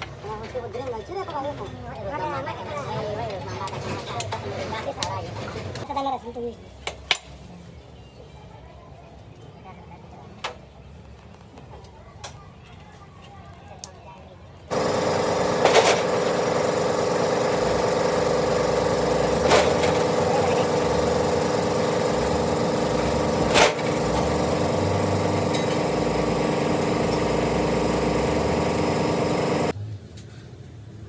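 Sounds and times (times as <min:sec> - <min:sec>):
machine running steadily: 0:14.7 - 0:29.8.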